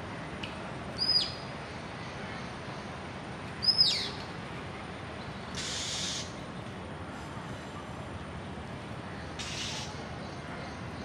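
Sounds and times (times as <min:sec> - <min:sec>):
outdoor hiss: 0:05.5 - 0:06.4.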